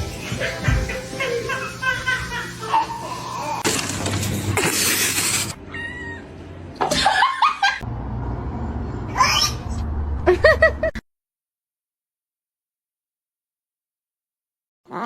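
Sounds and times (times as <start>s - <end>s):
cat meowing: 5.6s - 6.3s.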